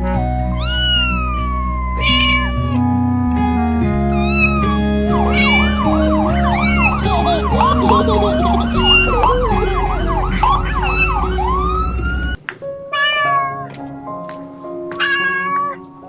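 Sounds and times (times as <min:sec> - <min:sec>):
background music: 0:00.0 - 0:16.0
kittens mewing: 0:00.5 - 0:02.9, 0:04.1 - 0:13.7, 0:15.0 - 0:15.8.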